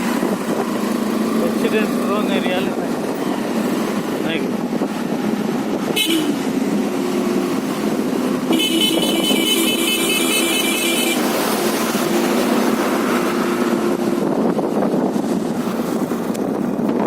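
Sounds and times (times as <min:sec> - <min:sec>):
motorcycle engine running: 0:00.0 - 0:17.0
wind rush on microphone: 0:00.0 - 0:17.0
high rapidly pulsing vehicle horn: 0:06.0 - 0:06.4, 0:08.5 - 0:11.3.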